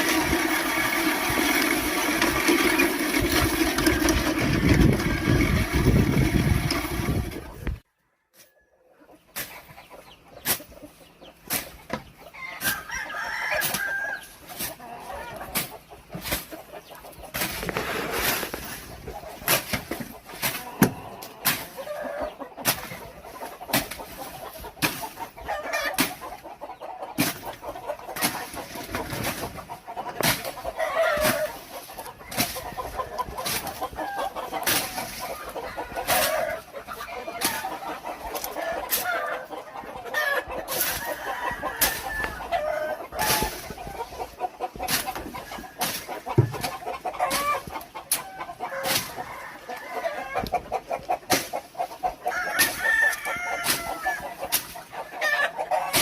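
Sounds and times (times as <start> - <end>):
chickens clucking: 0.0 - 56.0
rooster crowing: 12.3 - 14.3, 40.2 - 43.5, 48.7 - 50.5, 52.3 - 54.3.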